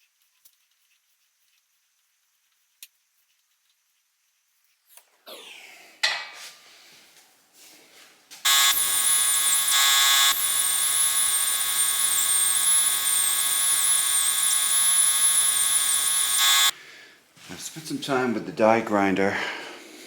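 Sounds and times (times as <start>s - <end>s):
die grinder whining on steel: 8.5s - 16.7s.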